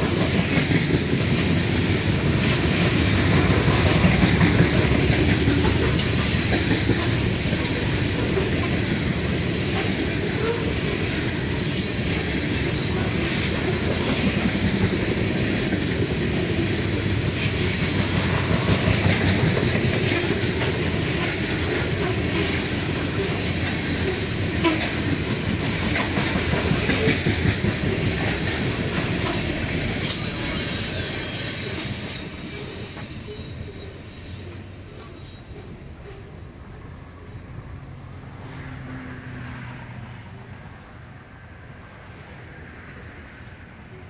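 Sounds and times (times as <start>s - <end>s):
wheels clicking over rail joints: 0.0s - 33.8s
freight train rumbling past: 0.0s - 44.0s.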